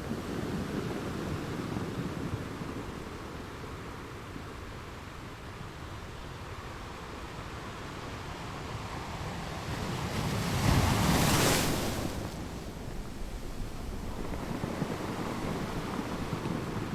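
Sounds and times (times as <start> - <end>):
sea waves breaking: 9.8 - 16.9.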